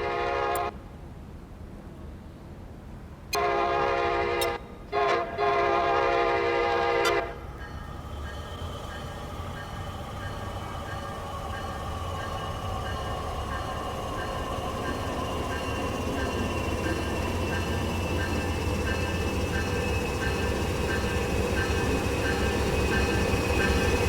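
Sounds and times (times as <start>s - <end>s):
diesel locomotive rumble: 3.4s - 24.0s
high whines sinking in pitch: 7.1s - 24.0s
train bell ringing: 7.1s - 24.0s.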